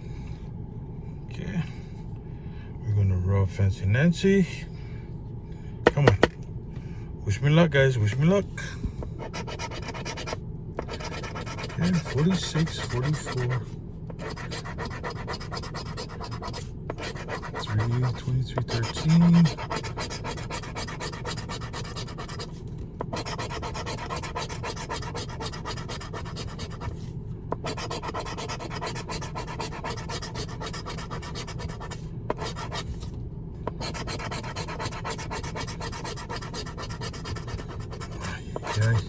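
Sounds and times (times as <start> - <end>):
lottery ticket being scratched: 9.2 - 27.0, 27.6 - 33.0, 33.7 - 39.0.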